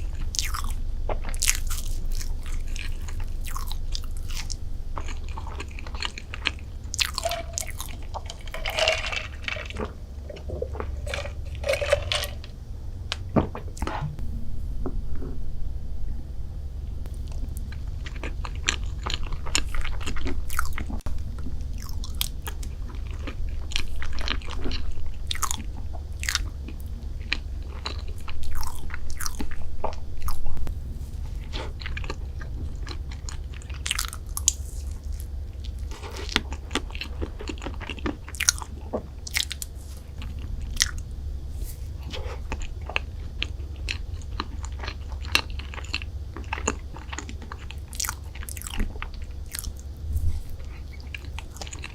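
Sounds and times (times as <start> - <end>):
crunchy bites and chewing: 0.0 - 12.5, 17.2 - 21.0, 31.3 - 41.1, 41.7 - 51.9
low hum: 0.0 - 51.9.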